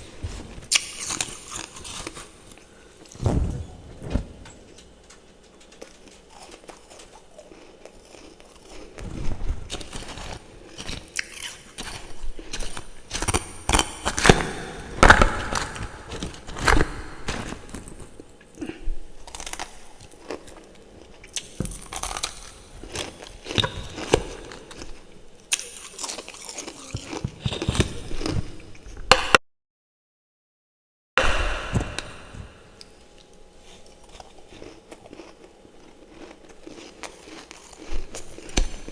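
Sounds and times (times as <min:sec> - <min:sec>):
person chewing crunchy ice: 0:00.7 - 0:02.4, 0:06.2 - 0:09.0, 0:09.7 - 0:14.5, 0:19.3 - 0:28.3, 0:33.7 - 0:38.9.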